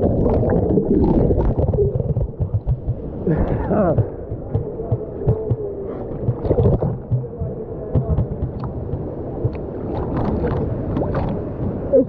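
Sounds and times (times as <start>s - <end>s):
low thumps of swimmers: 0.0s - 11.9s
muffled water sloshing: 0.0s - 12.0s
small splashes: 6.0s - 11.5s.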